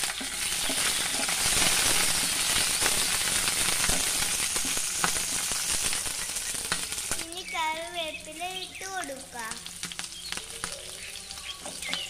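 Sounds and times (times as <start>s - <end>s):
spatula stirring: 0.0s - 7.2s
chillies sizzling in hot oil: 0.0s - 12.0s.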